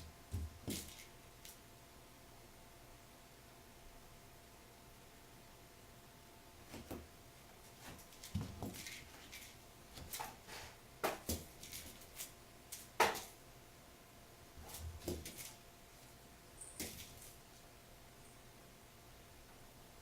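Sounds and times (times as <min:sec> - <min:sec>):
kitten thumping and scuffing floor: 0:00.3 - 0:01.1, 0:07.8 - 0:09.3, 0:11.0 - 0:13.4, 0:14.6 - 0:15.6.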